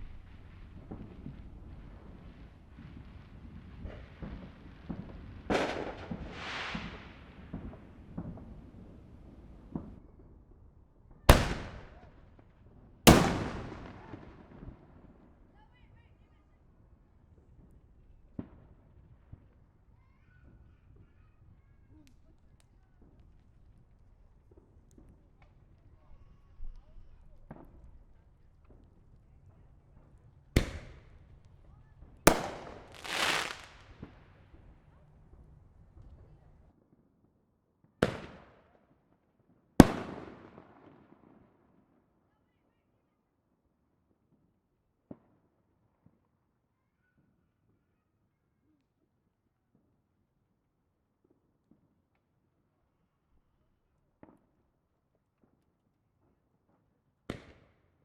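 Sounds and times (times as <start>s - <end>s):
loud firework bangs echoing: 0.0s - 10.2s, 11.3s - 12.2s, 13.1s - 15.2s, 28.7s - 36.6s, 39.8s - 40.7s
distant firework pops: 0.0s - 10.4s, 11.3s - 15.6s, 17.4s - 36.6s, 39.8s - 40.9s, 57.3s - 57.8s.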